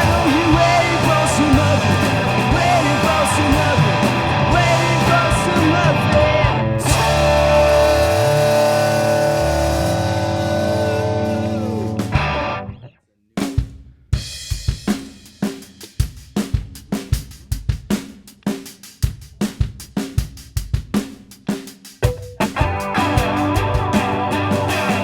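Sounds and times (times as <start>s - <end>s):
drum kit steady beat: 0.0s - 12.4s, 13.4s - 25.0s
rock band final chord: 0.0s - 12.8s, 22.2s - 25.0s.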